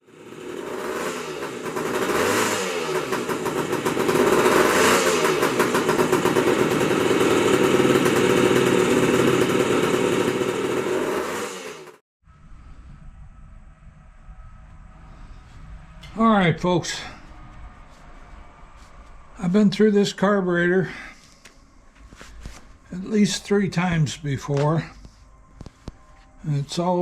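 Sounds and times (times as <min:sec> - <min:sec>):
small motorcycle engine revving: 0:00.0 - 0:13.6.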